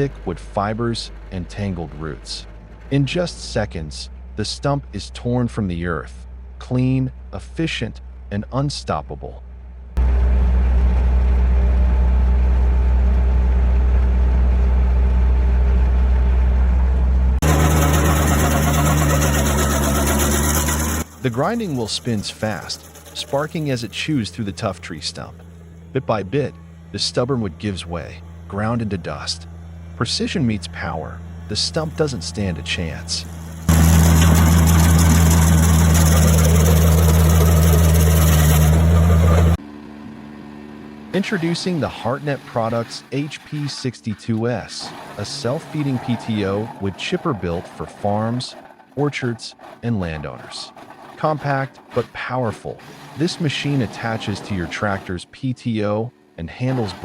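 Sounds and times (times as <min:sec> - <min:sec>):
heavy machine engine humming: 0:00.0 - 0:06.6, 0:09.4 - 0:55.2
stump grinder running: 0:17.4 - 0:24.5, 0:31.2 - 0:41.2, 0:44.8 - 0:47.8.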